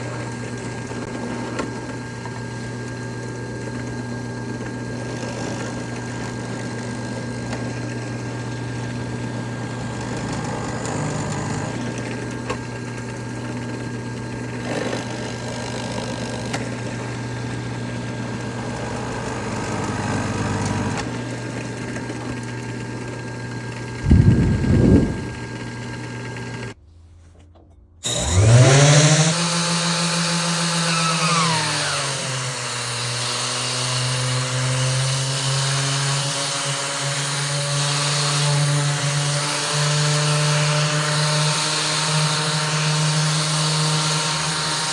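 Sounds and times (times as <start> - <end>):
machine motor humming: 0.0 - 26.8
loud low burst: 24.0 - 25.5.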